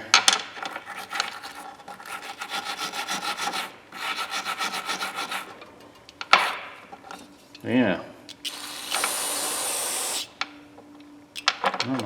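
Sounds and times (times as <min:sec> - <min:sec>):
brush scrubbing metal wrench: 0:00.6 - 0:05.6.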